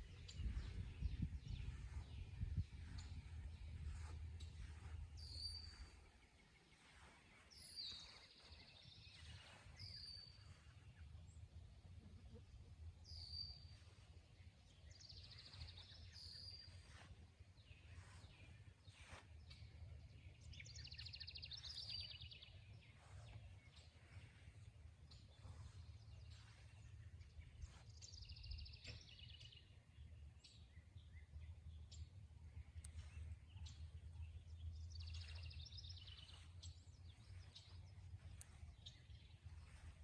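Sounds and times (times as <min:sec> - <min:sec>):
low steady rumble: 0:00.0 - 0:07.2
faint whistled birdsong: 0:00.0 - 0:11.4, 0:13.0 - 0:40.0.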